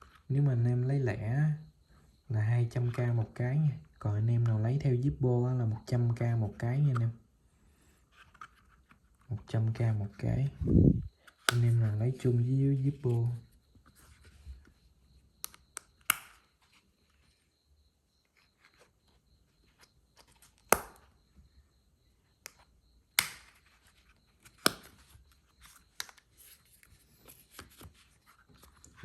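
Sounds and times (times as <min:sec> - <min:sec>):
lighter clicks and taps: 0:23.2 - 0:23.4.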